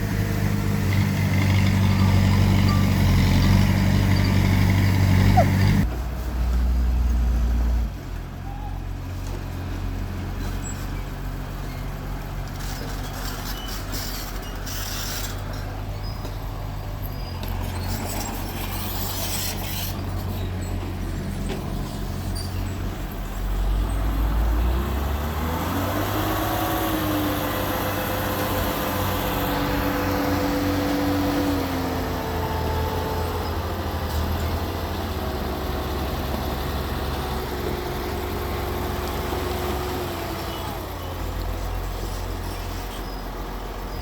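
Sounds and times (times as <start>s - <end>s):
heavy diesel machinery running: 0.0s - 5.9s.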